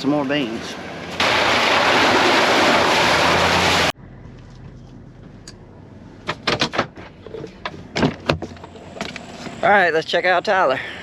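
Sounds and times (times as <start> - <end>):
sharp clicks and knocks: 6.2 - 9.6.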